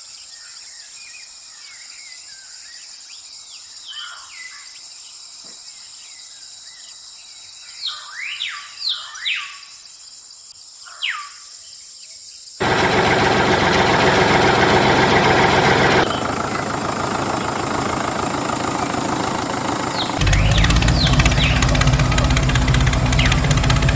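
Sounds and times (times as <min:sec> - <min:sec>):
high insect hum: 0:00.0 - 0:12.6
birds chirping: 0:12.6 - 0:23.9
small motor running roughly: 0:12.6 - 0:23.9.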